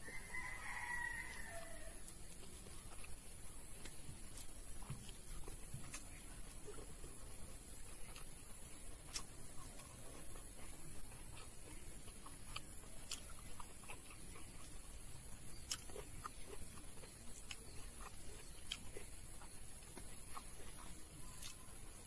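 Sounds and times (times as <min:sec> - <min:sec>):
person chewing food: 0:00.0 - 0:22.0
mouth clicks and smacks: 0:08.1 - 0:10.4.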